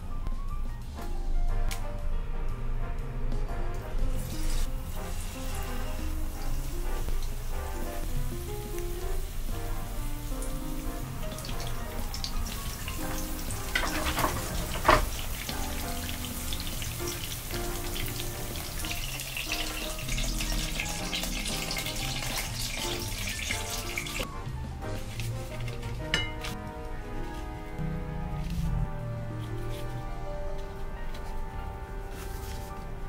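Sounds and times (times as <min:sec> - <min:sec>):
background music: 0:00.0 - 0:33.0
chicken sizzling in oil: 0:04.1 - 0:24.3.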